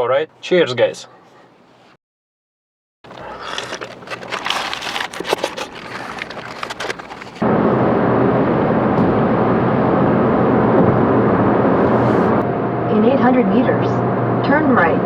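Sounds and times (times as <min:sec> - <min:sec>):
crackling and rustling with clicks: 0:03.1 - 0:07.5.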